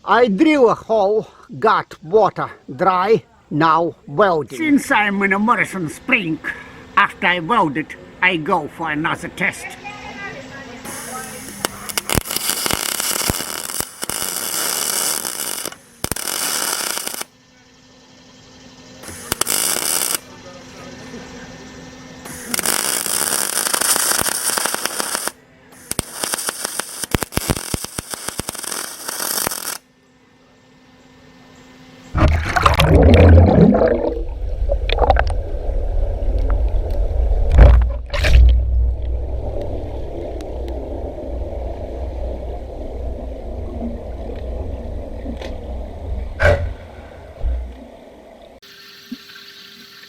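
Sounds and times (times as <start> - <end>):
welding arc crackling and hissing: 10.8 - 17.3, 19.0 - 20.2, 22.2 - 29.8
strong low rumble: 32.2 - 48.1
water churning and bubbling: 32.2 - 49.4.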